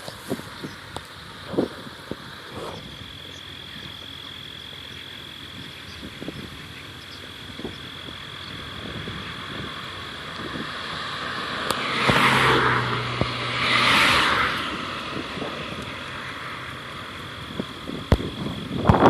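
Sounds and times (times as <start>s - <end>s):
high insect trill: 0.0s - 19.0s
rushing noise: 7.4s - 19.0s.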